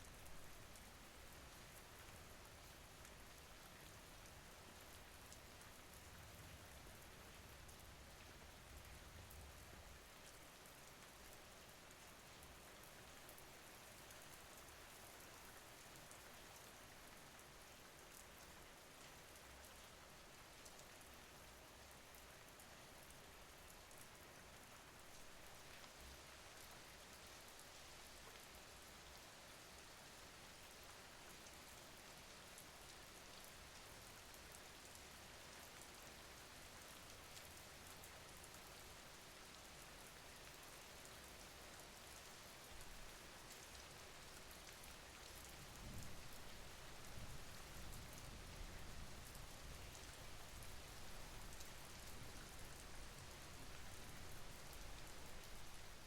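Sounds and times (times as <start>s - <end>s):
faint rain hissing: 18.3s - 56.0s.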